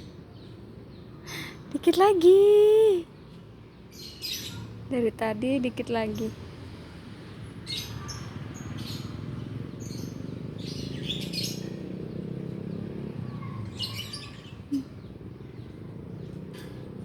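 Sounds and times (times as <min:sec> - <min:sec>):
small bird chirping: 0:07.6 - 0:17.0.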